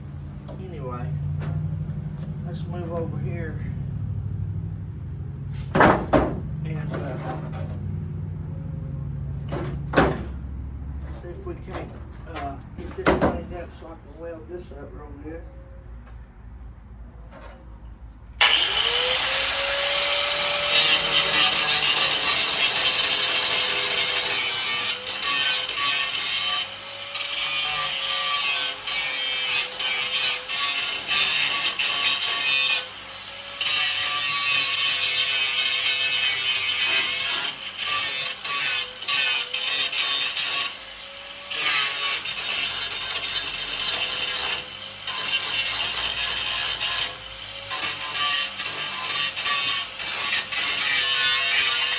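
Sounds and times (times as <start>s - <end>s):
angle grinder grinding steel: 6.6s - 8.0s, 18.4s - 51.9s.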